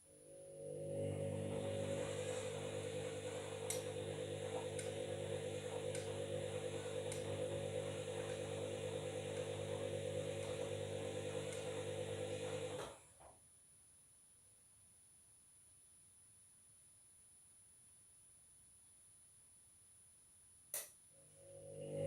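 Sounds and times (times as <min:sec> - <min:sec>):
washing machine motor humming: 0:00.2 - 0:13.0, 0:21.4 - 0:22.0.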